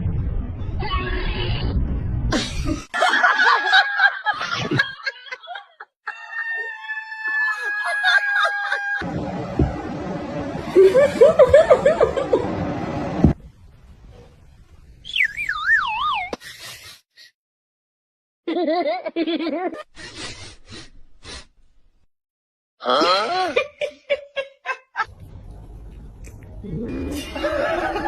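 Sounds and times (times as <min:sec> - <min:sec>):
canned laughter: 0:07.6 - 0:09.0, 0:23.2 - 0:25.1, 0:26.9 - 0:28.0.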